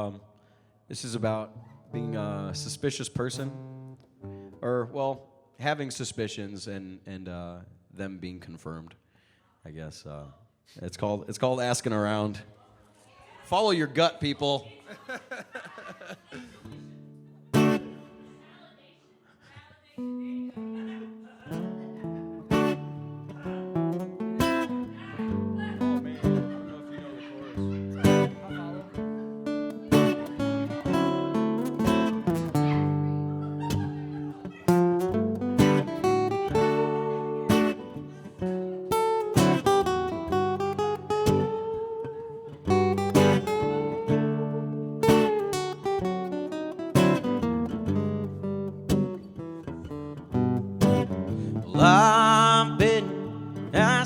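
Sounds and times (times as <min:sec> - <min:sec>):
acoustic guitar playing: 0:01.0 - 0:04.9, 0:16.3 - 0:18.9, 0:20.0 - 0:54.0.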